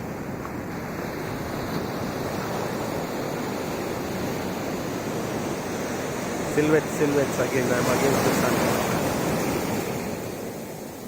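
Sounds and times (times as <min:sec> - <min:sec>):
ocean surf washing on beach: 0:00.0 - 0:11.0.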